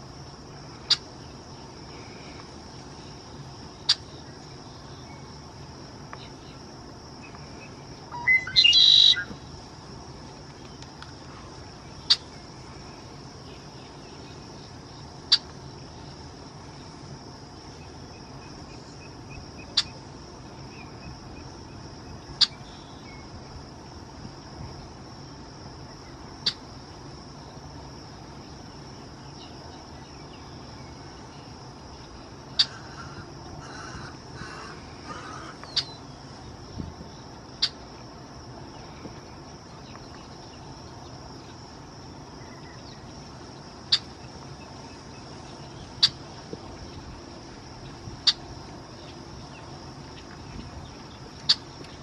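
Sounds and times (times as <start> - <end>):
crickets droning: 0.0 - 52.0
short sharp bird calls: 8.1 - 9.4.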